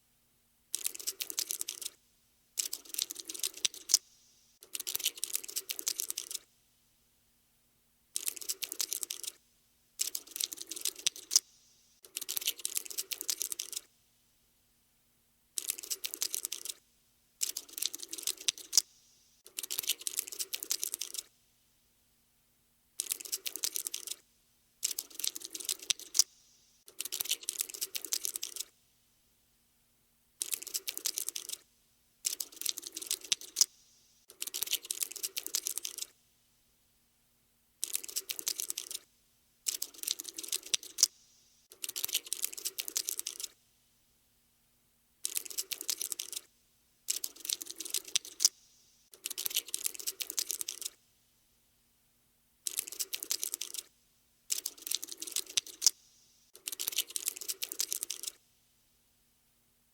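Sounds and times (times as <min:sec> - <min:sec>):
cockroach scuttling clicks: 0:00.7 - 0:02.0, 0:02.6 - 0:06.5, 0:08.2 - 0:09.4, 0:10.0 - 0:13.9, 0:15.6 - 0:16.8, 0:17.4 - 0:18.9, 0:19.5 - 0:21.3, 0:23.0 - 0:24.2, 0:24.8 - 0:28.7, 0:30.4 - 0:31.6, 0:32.2 - 0:36.1, 0:37.8 - 0:39.0, 0:39.7 - 0:43.6, 0:45.2 - 0:46.5, 0:47.1 - 0:51.0, 0:52.7 - 0:53.9, 0:54.5 - 0:56.0, 0:56.6 - 0:58.4.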